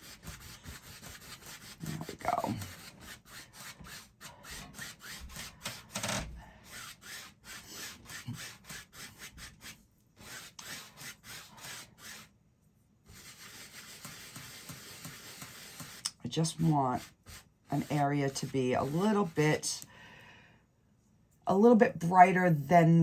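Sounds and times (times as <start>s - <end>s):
paintbrush scrubbing on canvas: 0.0s - 5.9s, 6.6s - 12.3s, 13.1s - 19.8s.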